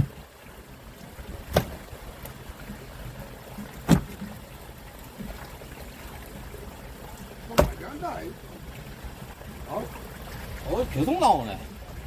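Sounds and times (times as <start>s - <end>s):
fishing boat low noise: 0.0s - 12.0s
sharp knocks: 1.5s - 1.8s, 3.9s - 4.2s.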